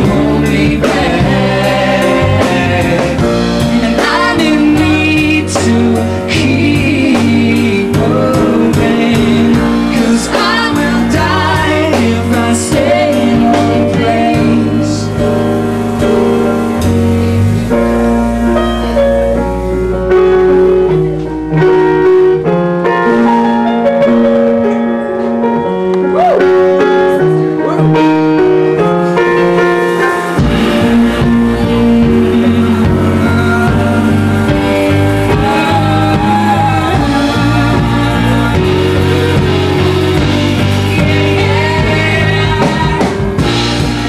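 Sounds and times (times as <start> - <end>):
person singing: 0.0 - 15.6, 28.8 - 44.0
bass line: 0.0 - 44.0
keyboard chords: 0.0 - 44.0.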